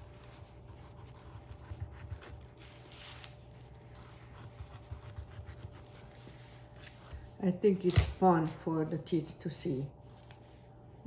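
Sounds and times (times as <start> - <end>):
knife scraping pineapple: 0.0 - 7.9.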